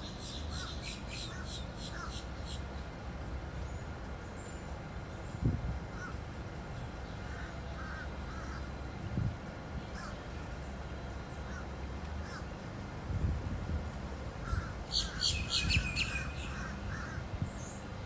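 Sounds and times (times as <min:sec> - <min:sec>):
birds calling: 0:00.0 - 0:02.7, 0:14.0 - 0:17.9.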